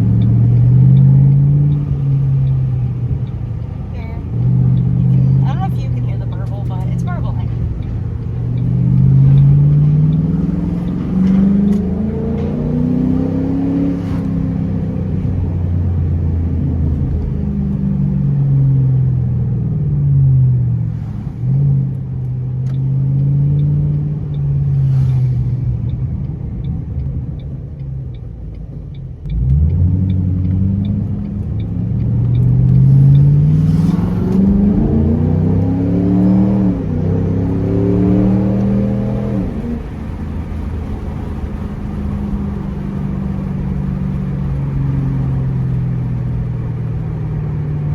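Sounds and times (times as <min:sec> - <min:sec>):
light ticking: 0:00.0 - 0:12.5, 0:25.8 - 0:33.4
car exhaust revving through gears: 0:00.0 - 0:47.9.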